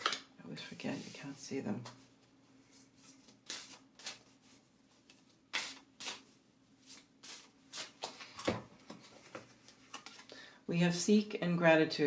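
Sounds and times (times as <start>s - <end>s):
cards rustling and flicking: 3.0s - 4.4s, 5.0s - 10.3s.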